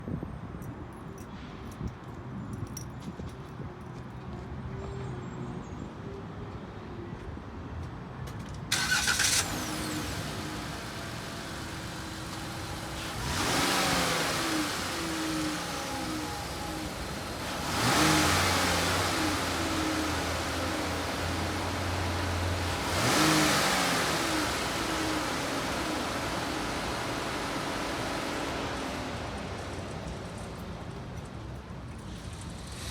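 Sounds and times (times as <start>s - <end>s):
van engine starting: 8.7s - 31.6s
engine idling and revving: 8.7s - 32.9s.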